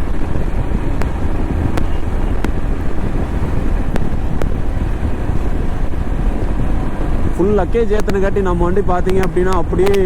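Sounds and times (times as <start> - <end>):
motorcycle engine: 0.0 - 7.3
road noise: 0.0 - 10.0
wind buffeting microphone: 0.0 - 10.0
light ticks: 8.0 - 8.2, 9.0 - 10.0.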